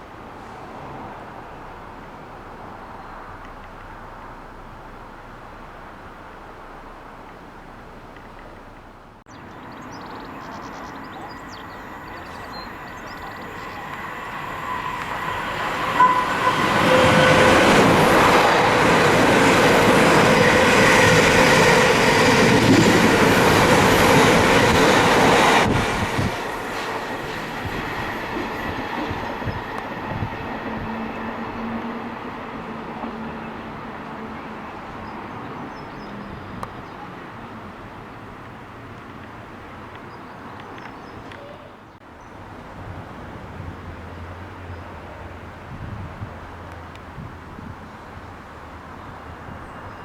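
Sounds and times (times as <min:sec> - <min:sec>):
faint train rumble: 0:00.0 - 0:50.0.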